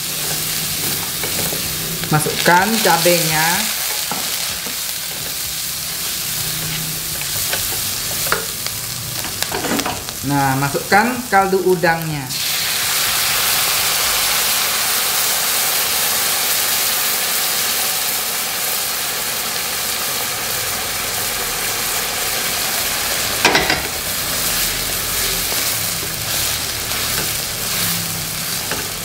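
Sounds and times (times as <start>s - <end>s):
wooden spatula stirring a wok: 0.0s - 10.0s, 23.2s - 29.0s
stock sizzling in a hot wok: 0.0s - 29.0s.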